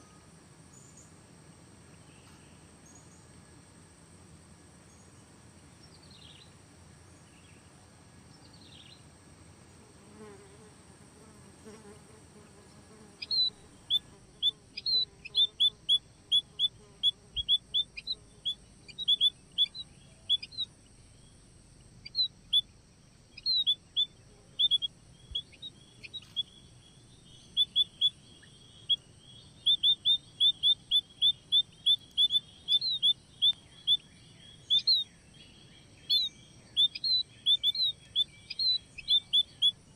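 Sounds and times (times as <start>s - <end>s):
high insect drone: 0.0s - 39.9s
small birds chirping: 4.9s - 9.1s, 12.9s - 39.9s.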